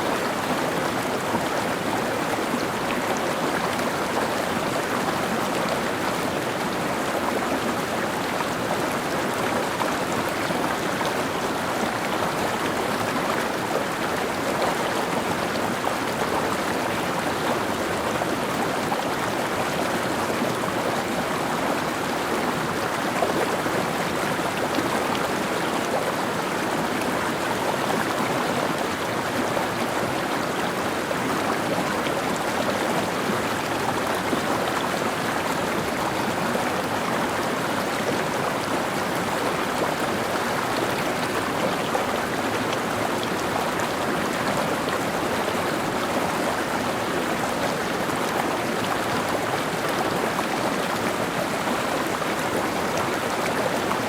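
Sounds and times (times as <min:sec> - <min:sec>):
stream water babbling over rocks: 0:00.0 - 0:54.0.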